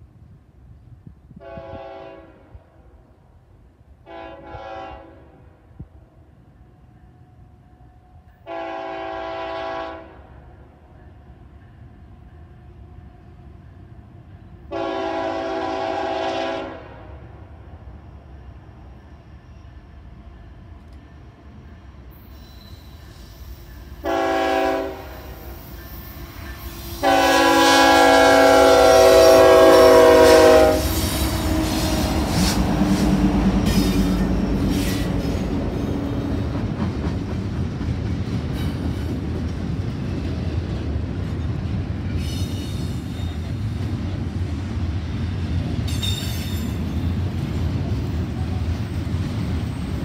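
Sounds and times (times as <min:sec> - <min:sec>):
locomotive air horn blasts: 0:01.4 - 0:02.7, 0:04.0 - 0:05.6, 0:08.4 - 0:10.3, 0:14.7 - 0:17.2, 0:24.0 - 0:25.4, 0:26.9 - 0:34.1
container cars rumbling on rails: 0:27.8 - 0:50.0.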